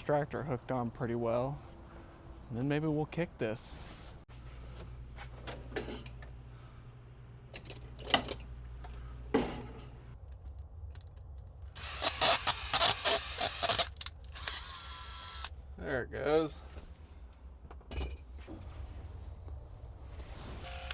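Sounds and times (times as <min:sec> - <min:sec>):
low steady hum: 0:00.0 - 0:20.9
rasping ratchet-like metal strokes: 0:11.8 - 0:15.5.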